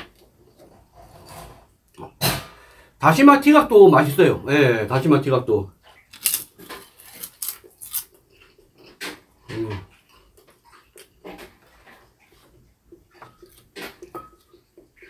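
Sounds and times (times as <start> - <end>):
crunchy chip chewing: 6.1 - 8.6.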